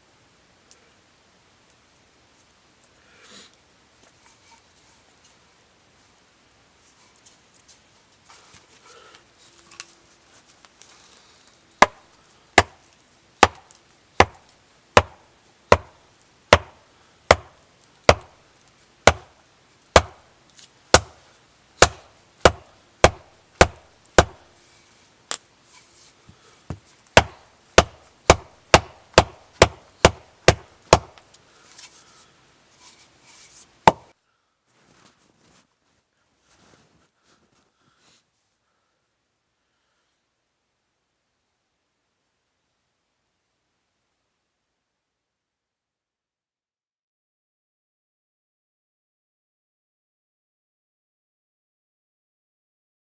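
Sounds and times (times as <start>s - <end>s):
tool chopping into wood: 11.8s - 12.0s, 12.6s - 12.8s, 13.4s - 18.4s, 19.1s - 19.3s, 20.0s - 20.2s, 20.9s - 21.2s, 21.8s - 24.4s, 26.7s - 31.2s, 33.9s - 34.1s.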